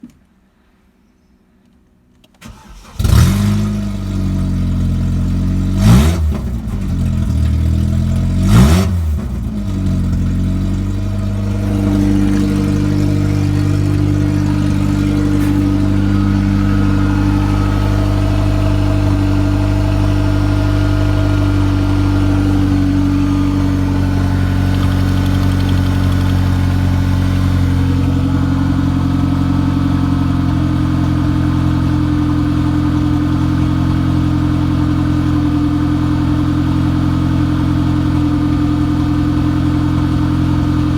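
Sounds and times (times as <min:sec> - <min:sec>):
car engine starting and idling: 0:02.2 - 0:40.9
engine revving: 0:02.4 - 0:33.4.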